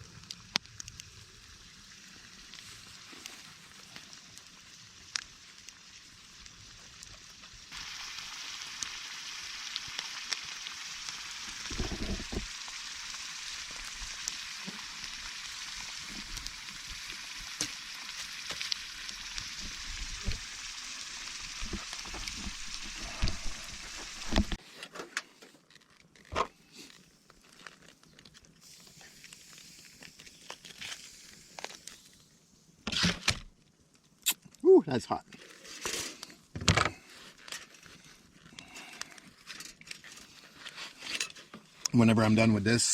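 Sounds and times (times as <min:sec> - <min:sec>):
food sizzling in a pan: 0:01.0 - 0:24.6, 0:28.6 - 0:32.2.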